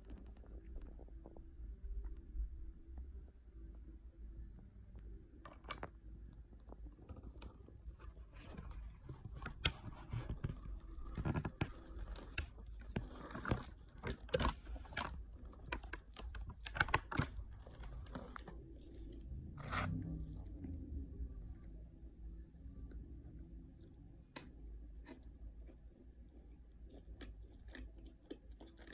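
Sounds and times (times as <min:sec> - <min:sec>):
crunchy chewing: 0:06.8 - 0:20.9, 0:23.8 - 0:28.9.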